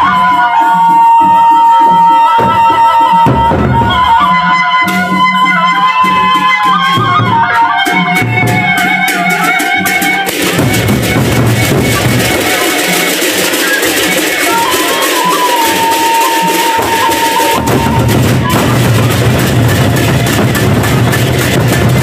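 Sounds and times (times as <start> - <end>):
large drums beating: 1.2 - 5.0, 6.9 - 22.0
cymbals crashing: 9.0 - 22.0.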